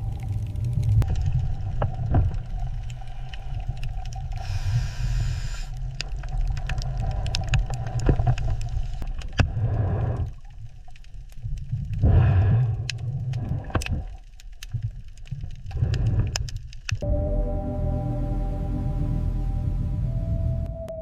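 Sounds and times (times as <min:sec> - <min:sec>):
burst of hiss: 0:04.4 - 0:05.7
low steady rumble: 0:17.0 - 0:21.0.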